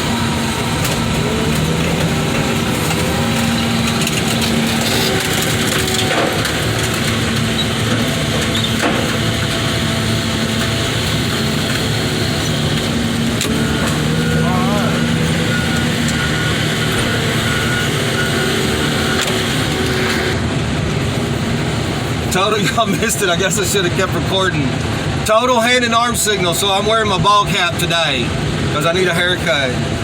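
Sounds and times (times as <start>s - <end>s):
heavy diesel engine running: 0.0s - 30.0s
metal being crushed: 0.1s - 17.6s.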